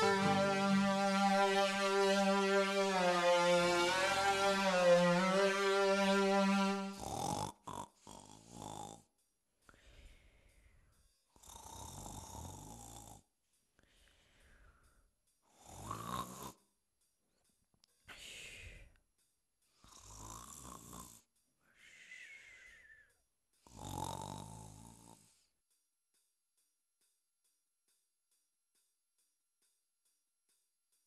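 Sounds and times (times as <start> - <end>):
person snoring: 23.7 - 25.3.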